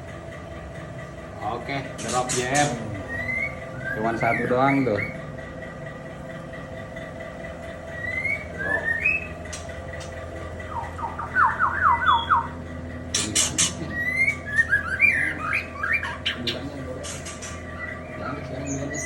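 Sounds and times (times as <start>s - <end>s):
bird harsh clicking rasps: 2.0s - 5.2s, 8.0s - 14.5s, 15.5s - 18.0s
bird rising whistles: 3.1s - 5.2s, 8.0s - 9.3s, 10.7s - 12.5s.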